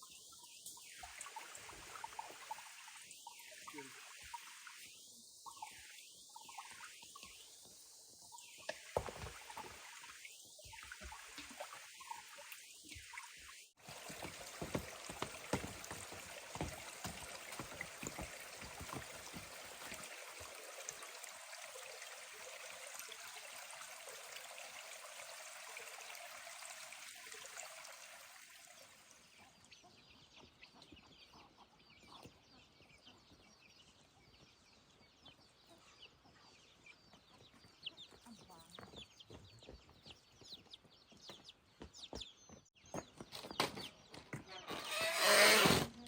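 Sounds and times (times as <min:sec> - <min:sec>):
water pouring and splashing: 0:00.0 - 0:29.4.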